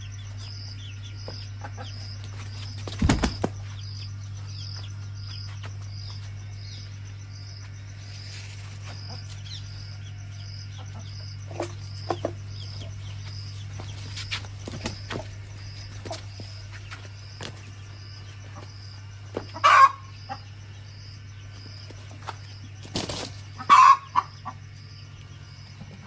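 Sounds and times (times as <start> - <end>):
steady low hum: 0.0 - 26.0
birds flapping wings: 2.4 - 3.6, 22.8 - 23.4.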